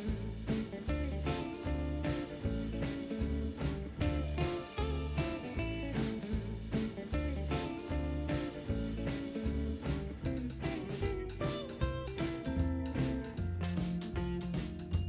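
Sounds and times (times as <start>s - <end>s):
country blues guitar music: 0.0s - 15.0s.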